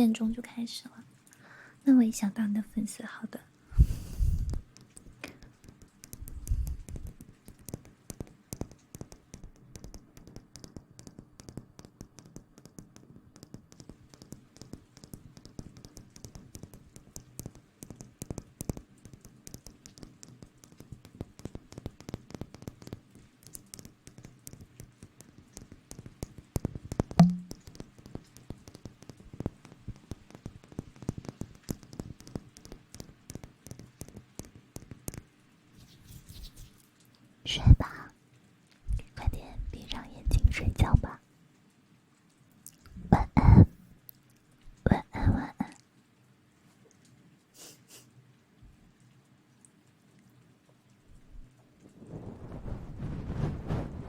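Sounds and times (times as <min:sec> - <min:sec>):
rustling and tapping on microphone: 0:03.8 - 0:38.0, 0:38.7 - 0:41.2, 0:42.2 - 0:45.9, 0:50.6 - 0:54.0
loud thump: 0:27.2 - 0:27.5.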